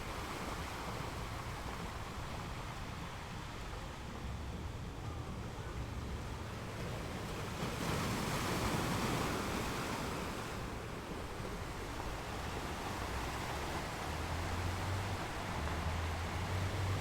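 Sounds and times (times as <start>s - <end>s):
sea waves washing ashore: 0.0s - 17.0s.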